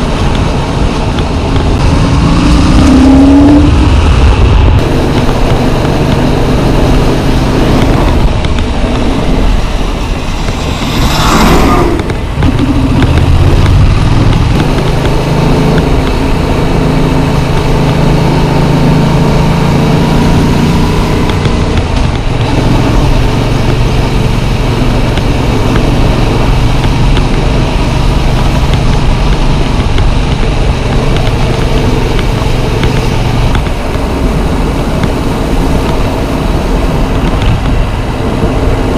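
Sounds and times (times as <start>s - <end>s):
wind hiss: 0.0s - 18.0s
motorcycle engine running: 0.0s - 38.9s
short loud whoosh: 8.0s - 14.4s.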